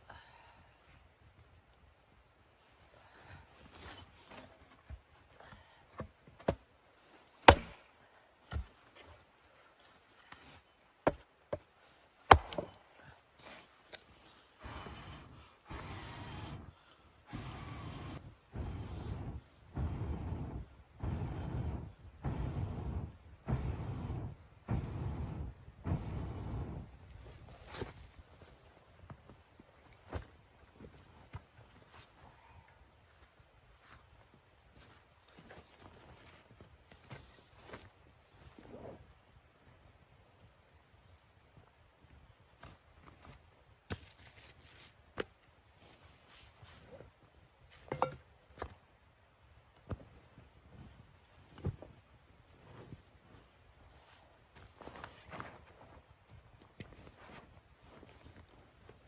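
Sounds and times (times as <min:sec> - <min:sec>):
axe chopping wood: 0:07.4 - 0:07.8, 0:12.3 - 0:12.8.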